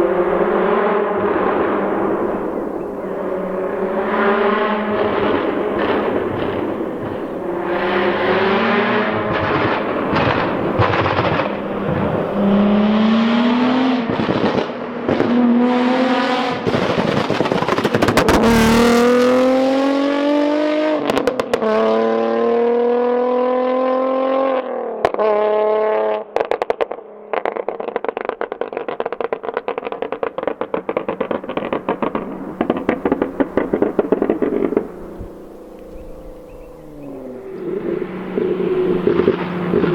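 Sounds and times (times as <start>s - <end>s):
car engine accelerating hard: 0.0s - 26.2s, 27.4s - 39.9s
exhaust crackles and pops: 4.9s - 7.8s, 8.7s - 12.7s, 14.0s - 15.4s, 16.5s - 19.4s, 26.4s - 39.9s.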